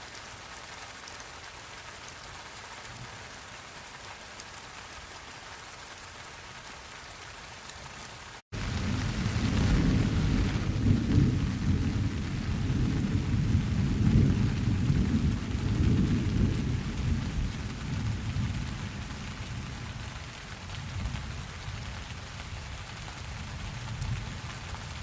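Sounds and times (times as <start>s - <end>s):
steady rain: 0.0s - 25.0s
rolling thunder: 8.6s - 20.1s.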